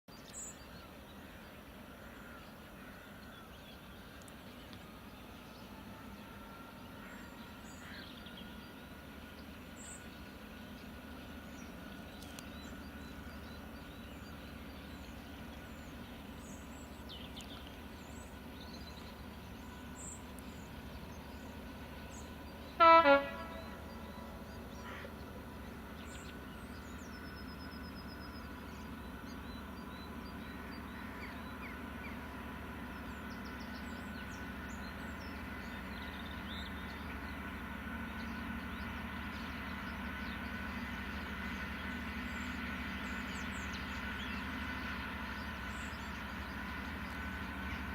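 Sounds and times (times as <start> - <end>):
distant locomotive engine drone: 0.1 - 47.9
faint birds chirping: 0.2 - 47.9
train horn blast: 22.7 - 24.1.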